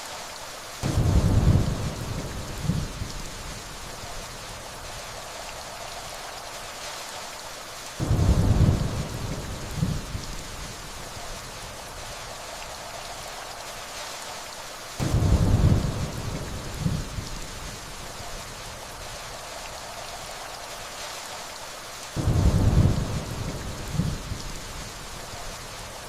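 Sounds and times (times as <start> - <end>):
steady rainfall: 0.0 - 26.0
distant thunder rumbling: 0.8 - 6.2, 8.0 - 13.0, 15.0 - 17.9, 22.2 - 26.0.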